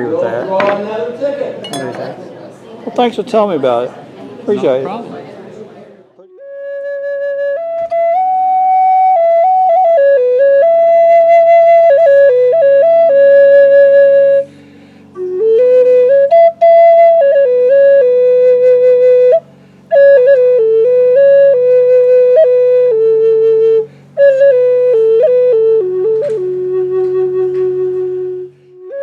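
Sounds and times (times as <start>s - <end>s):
breathy flute melody: 6.2s - 29.0s.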